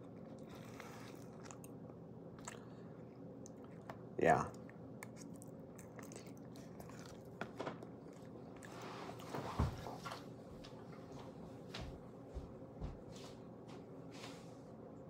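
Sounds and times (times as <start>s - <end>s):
rustling shuffle: 8.7s - 14.7s.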